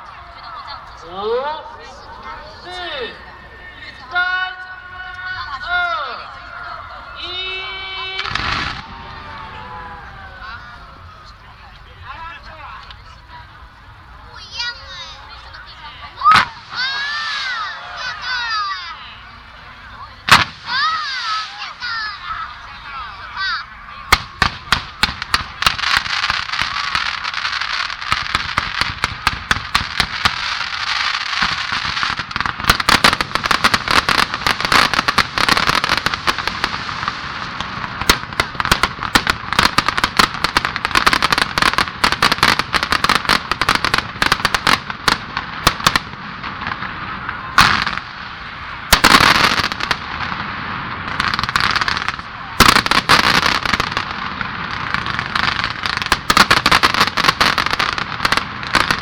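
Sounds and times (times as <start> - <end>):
firework crackling: 0.0 - 59.0.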